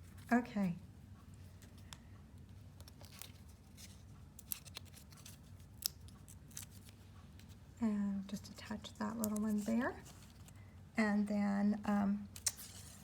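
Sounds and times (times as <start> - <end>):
faint low hum: 0.0 - 13.0
paper rustling and clicking: 1.4 - 7.6, 9.2 - 10.6, 12.4 - 13.0.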